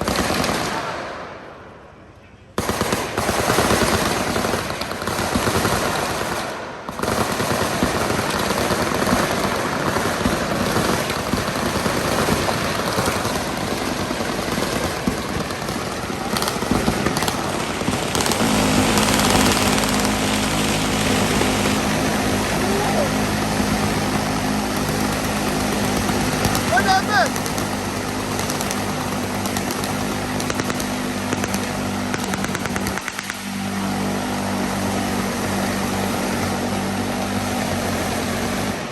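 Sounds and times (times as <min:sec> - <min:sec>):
automatic machine gun fire: 0:00.0 - 0:01.6, 0:02.6 - 0:38.9
steady low drone: 0:11.4 - 0:38.9.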